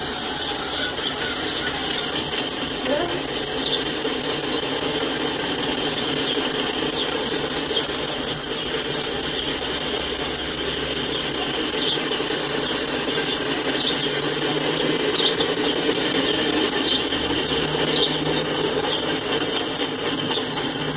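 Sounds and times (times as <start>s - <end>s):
high-pitched wheel squeals: 0.0s - 3.8s
freight cars rolling on rails: 0.0s - 20.9s.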